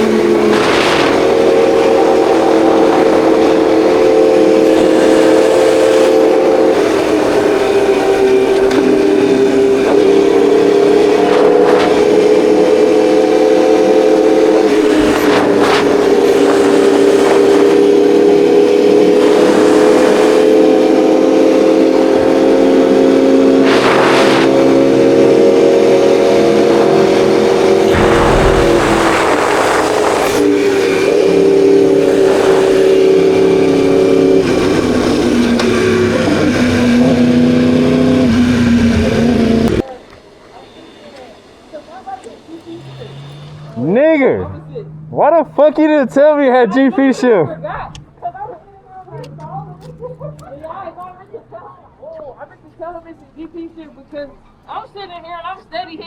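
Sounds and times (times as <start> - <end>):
wind and road noise: 0.0 - 13.2, 13.8 - 39.8.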